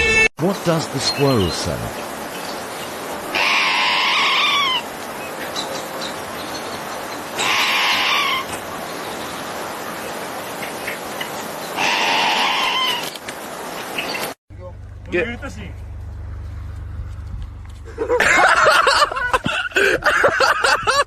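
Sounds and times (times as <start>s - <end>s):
squirrel screeching calls: 3.2s - 5.0s, 7.2s - 8.6s, 11.6s - 13.2s.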